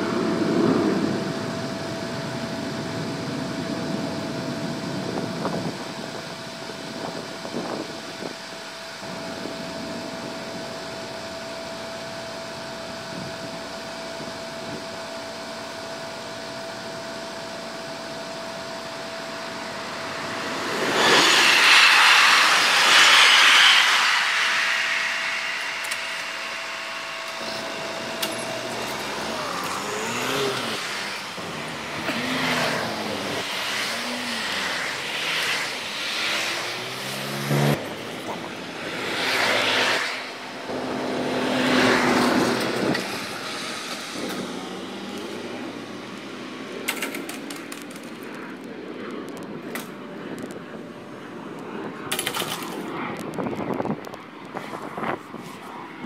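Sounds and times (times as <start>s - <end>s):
car engines accelerating past: 0.0s - 5.0s, 18.6s - 49.0s
steady tone: 16.7s - 46.8s
train rushing past: 18.8s - 46.6s.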